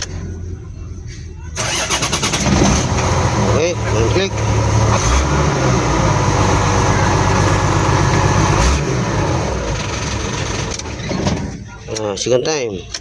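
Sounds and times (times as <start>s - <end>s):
diesel truck engine running: 0.0s - 11.9s.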